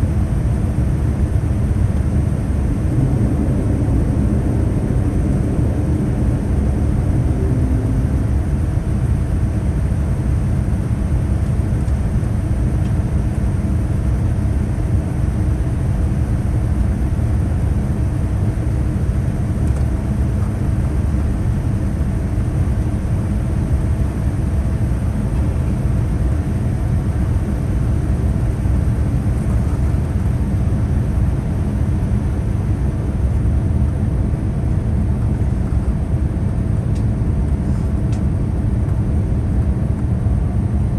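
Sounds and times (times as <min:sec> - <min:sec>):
airliner engine and airflow rumble: 0:00.0 - 0:40.9
faint steady hum: 0:00.0 - 0:40.9.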